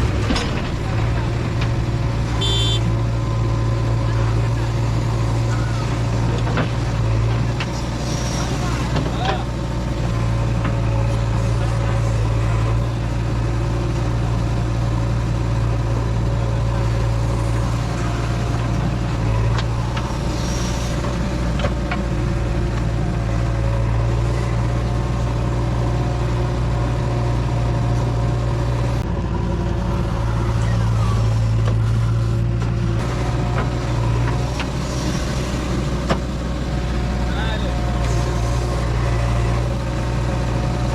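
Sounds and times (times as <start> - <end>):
heavy diesel engine humming: 0.0 - 40.9.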